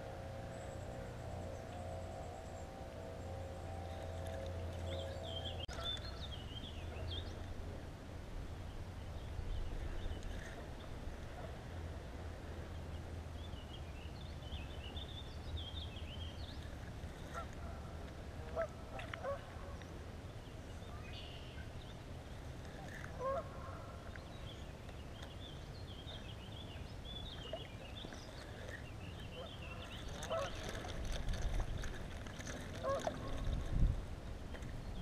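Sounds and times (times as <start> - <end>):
low rumble: 0.0 - 13.4
birds chirping: 0.1 - 7.5, 24.0 - 33.4.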